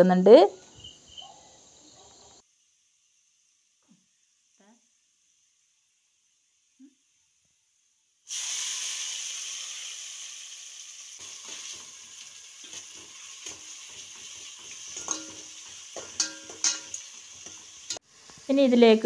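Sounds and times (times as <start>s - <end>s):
food sizzling in hot oil: 2.4s - 19.0s
metal spoon scraping a pot: 12.6s - 18.0s.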